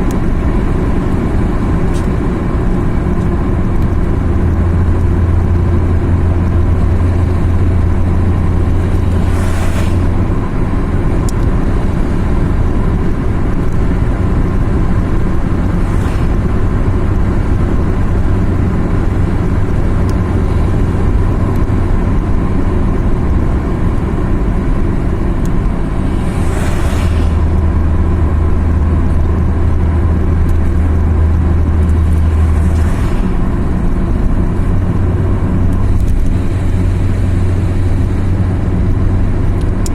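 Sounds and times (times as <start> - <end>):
car engine drone: 0.0 - 39.9
tyre and road noise: 0.0 - 39.9
brief whooshes: 8.8 - 10.4, 25.9 - 28.1.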